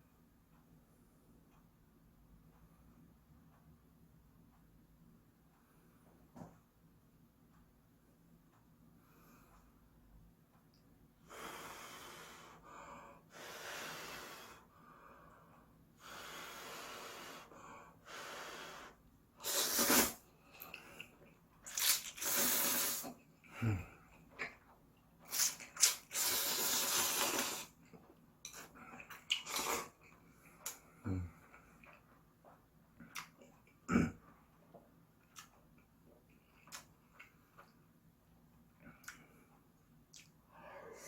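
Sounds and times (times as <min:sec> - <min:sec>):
person slurping noodles: 0:19.4 - 0:20.2, 0:21.7 - 0:23.2, 0:25.3 - 0:27.8, 0:29.3 - 0:30.0.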